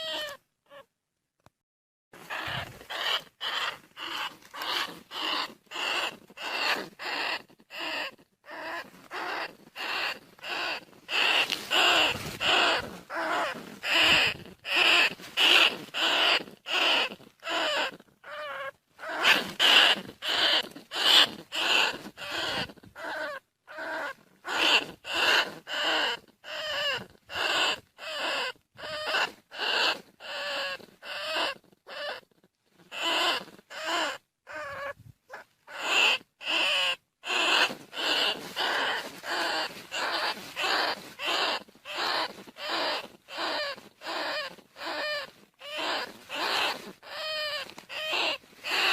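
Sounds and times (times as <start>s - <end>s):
rat squeaky cries: 0.0s - 0.9s, 2.2s - 48.9s.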